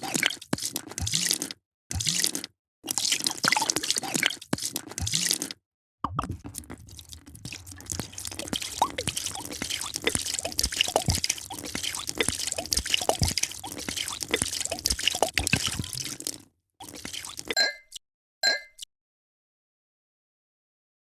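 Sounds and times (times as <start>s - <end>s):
liquid pouring and splashing: 0.0s - 5.5s, 6.1s - 17.6s
bubble pops: 6.0s - 17.6s.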